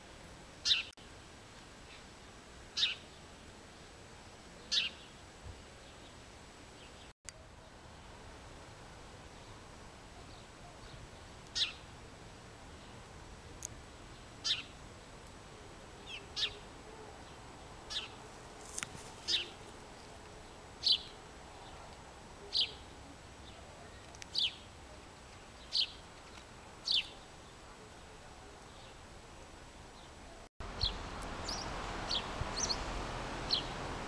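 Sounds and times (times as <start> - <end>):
faint background hiss: 0.0 - 34.0
bird chirping: 0.6 - 0.9, 2.8 - 3.2, 4.6 - 5.2, 9.3 - 11.9, 14.0 - 14.8, 16.0 - 27.6, 30.0 - 33.9.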